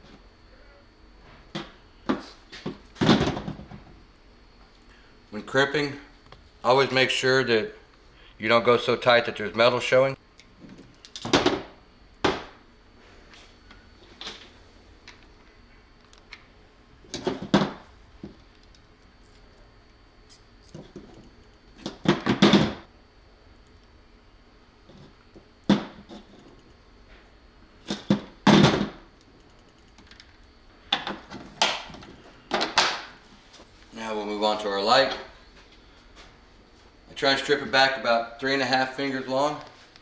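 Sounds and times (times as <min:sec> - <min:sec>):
wires being handled: 0:18.2 - 0:22.0.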